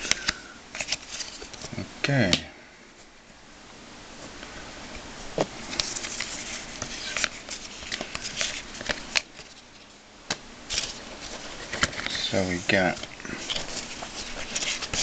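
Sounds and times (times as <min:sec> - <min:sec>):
trading cards being flipped: 0:00.0 - 0:01.7, 0:05.4 - 0:15.0.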